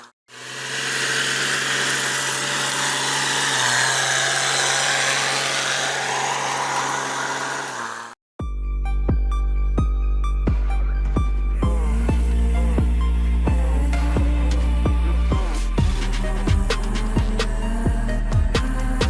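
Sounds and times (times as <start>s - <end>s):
vehicle engine running: 0.3s - 8.2s
music with heavy bass beat: 9.0s - 19.0s.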